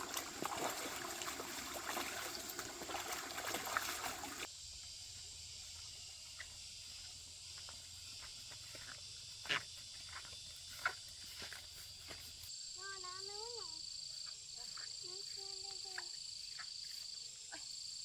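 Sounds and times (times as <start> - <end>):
water trickling and splashing: 0.0 - 4.5
insects chirring: 0.0 - 18.0.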